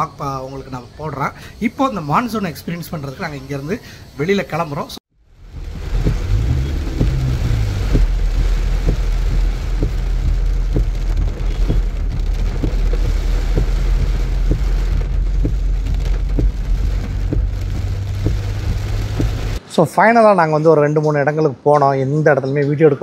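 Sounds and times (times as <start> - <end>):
engine and road rumble: 5.1 - 19.6
sharp drop impacts: 5.3 - 19.6
heavy rain drumming on car roof: 5.4 - 19.6.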